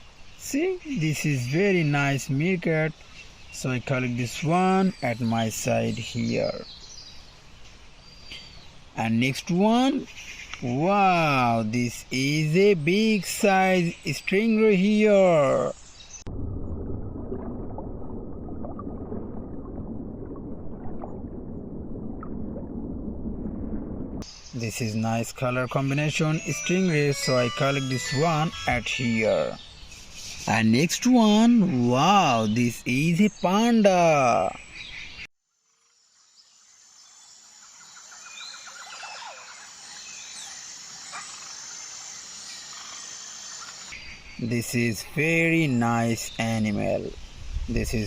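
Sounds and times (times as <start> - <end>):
short bird chirps: 8.1 - 8.7
muffled underwater rushing: 16.2 - 24.2
high insect drone: 24.2 - 30.6, 35.5 - 44.0
rattling trill: 25.9 - 29.5.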